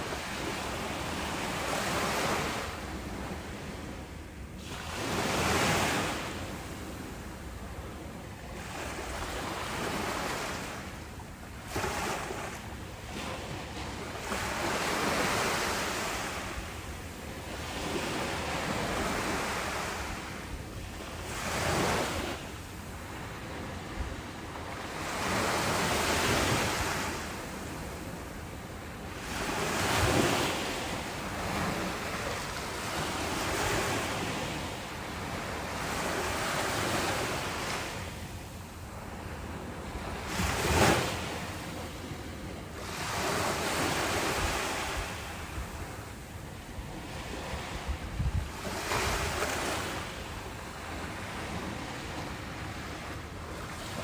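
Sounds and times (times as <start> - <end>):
ocean waves breaking: 38.9 - 54.0
wind on microphone: 43.2 - 54.0.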